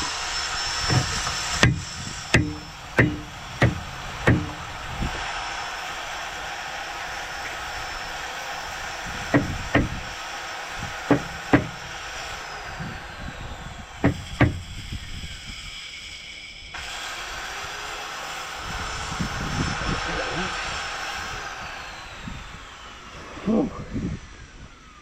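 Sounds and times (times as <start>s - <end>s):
hammer blows on metal part: 0.8s - 5.3s, 9.2s - 10.0s, 11.0s - 12.0s, 14.0s - 14.8s.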